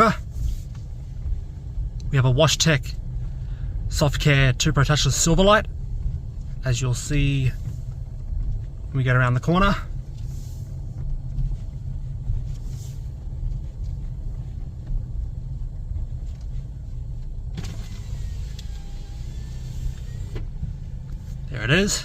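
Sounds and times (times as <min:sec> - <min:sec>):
car cabin low rumble: 0:00.0 - 0:22.0.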